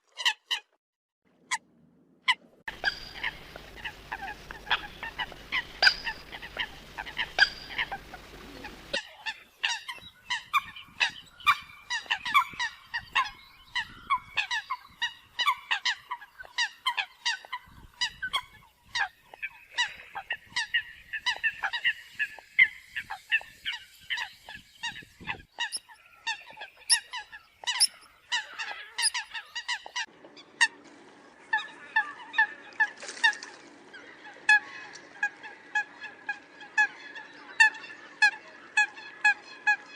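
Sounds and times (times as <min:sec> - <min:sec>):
coots honking calls: 0:02.7 - 0:13.4.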